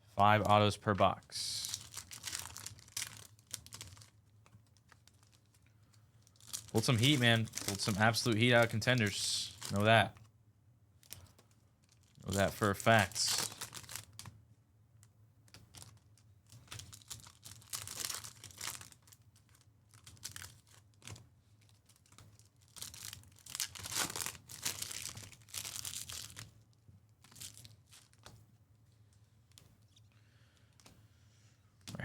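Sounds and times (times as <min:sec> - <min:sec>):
wrappers tearing and crinkling: 0:01.5 - 0:04.2, 0:04.8 - 0:05.6, 0:06.2 - 0:10.0, 0:11.0 - 0:14.3, 0:15.5 - 0:26.5, 0:27.2 - 0:28.3.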